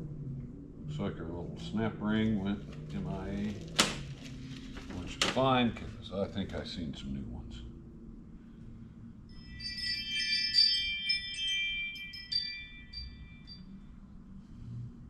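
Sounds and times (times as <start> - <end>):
small metal parts jingling: 9.4 - 13.6.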